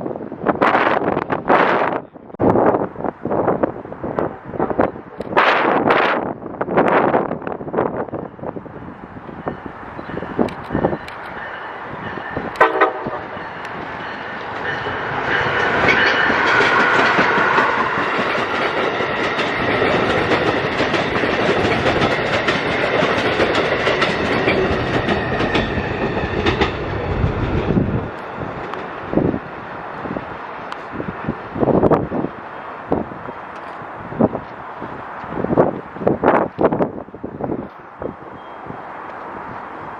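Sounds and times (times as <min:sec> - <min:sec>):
passenger train passing: 0:00.0 - 0:39.9
wheels clicking over rail joints: 0:10.0 - 0:29.4.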